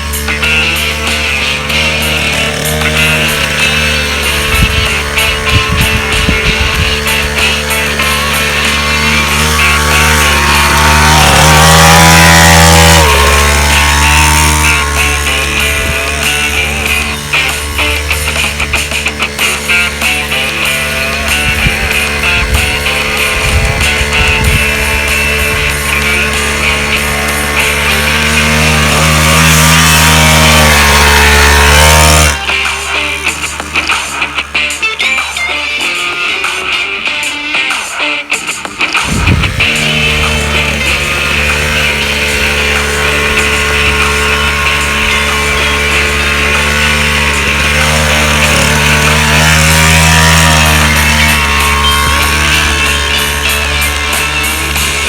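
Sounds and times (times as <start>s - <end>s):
background music: 0.0s - 55.0s
dirt bike engine revving: 0.0s - 55.0s.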